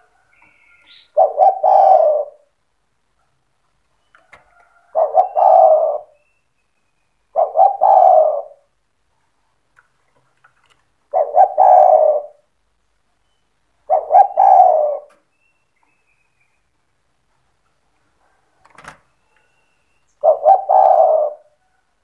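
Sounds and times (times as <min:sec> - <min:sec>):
dove cooing: 0:00.0 - 0:02.6, 0:04.3 - 0:06.2, 0:07.3 - 0:08.8, 0:11.1 - 0:12.5, 0:13.8 - 0:15.2, 0:20.2 - 0:21.8.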